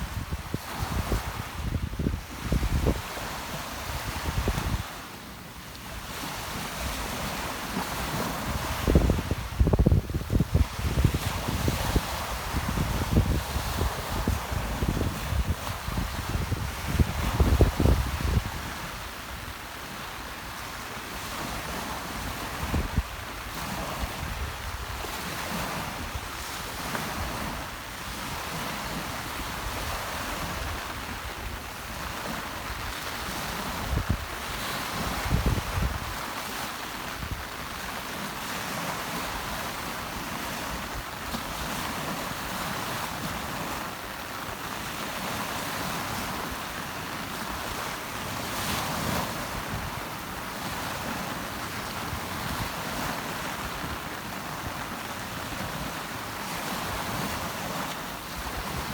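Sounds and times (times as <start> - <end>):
wind buffeting microphone: 0.0 - 5.0, 6.1 - 19.5, 21.4 - 36.2
sea surf washing onto shore: 0.0 - 58.9
rain: 12.0 - 58.9.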